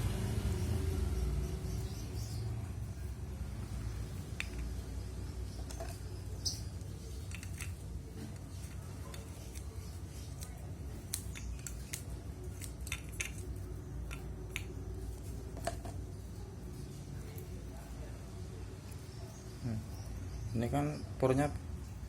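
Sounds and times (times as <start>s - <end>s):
hands clicking and snipping: 4.2s - 4.9s, 5.6s - 15.9s.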